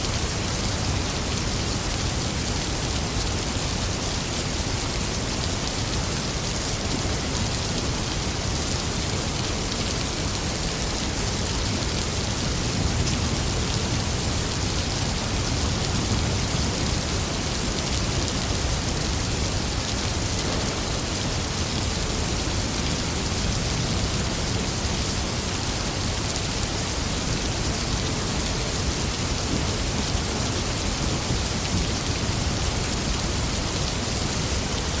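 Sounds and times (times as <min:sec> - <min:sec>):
steady rain pouring: 0:00.0 - 0:35.0.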